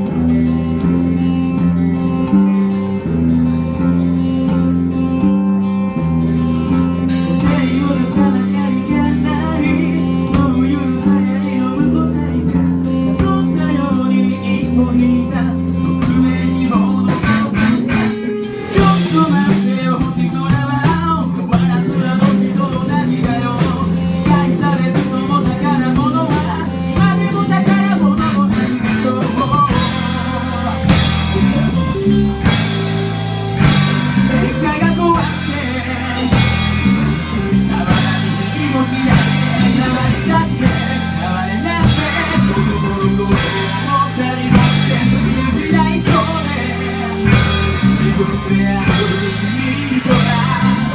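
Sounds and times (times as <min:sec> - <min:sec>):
rock band playing: 0:00.0 - 0:50.9
person singing: 0:03.7 - 0:50.9
heavy cymbals and drums: 0:07.1 - 0:08.7, 0:17.0 - 0:50.9.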